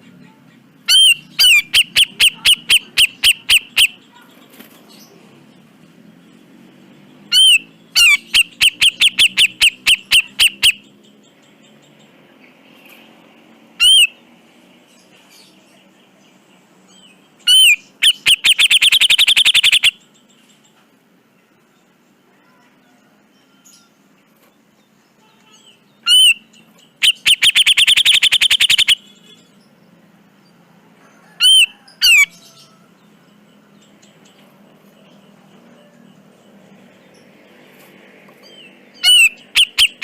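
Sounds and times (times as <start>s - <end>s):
bulbul calling: 0.8s - 4.3s, 7.3s - 10.9s, 13.8s - 14.2s, 17.4s - 20.1s, 25.6s - 29.3s, 31.4s - 32.6s, 38.4s - 40.0s.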